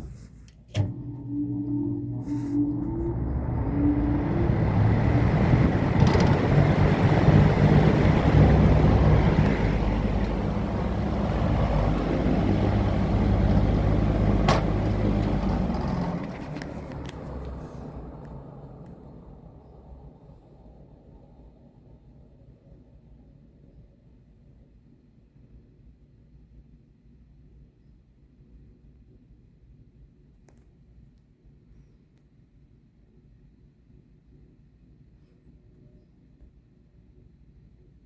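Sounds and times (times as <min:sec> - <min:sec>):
box fan running: 0:00.0 - 0:19.5.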